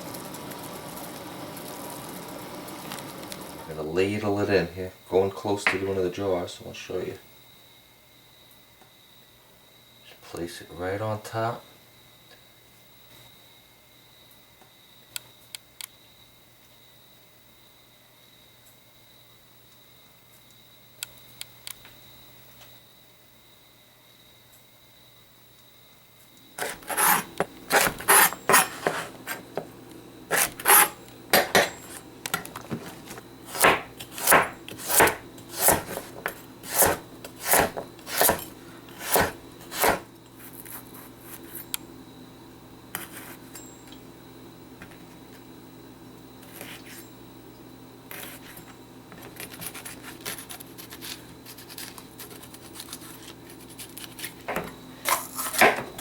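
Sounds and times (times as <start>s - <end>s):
knife cutting vegetables on board: 26.6s - 29.6s, 30.3s - 32.0s, 32.7s - 40.8s, 49.2s - 55.9s
handling sounds: 26.6s - 41.7s.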